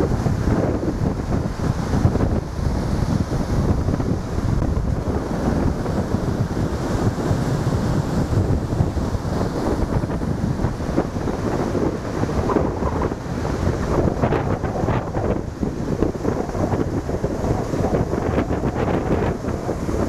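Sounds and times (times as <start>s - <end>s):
waves breaking on shore: 0.0s - 20.0s
wind buffeting microphone: 0.0s - 20.0s.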